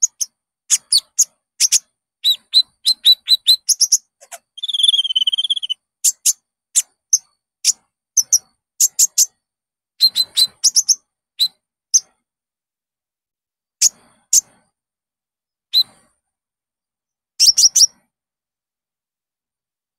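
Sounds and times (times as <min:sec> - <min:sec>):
songbird chirping and trilling: 0:00.0 - 0:09.4, 0:10.0 - 0:12.2, 0:15.7 - 0:16.1, 0:17.4 - 0:18.0.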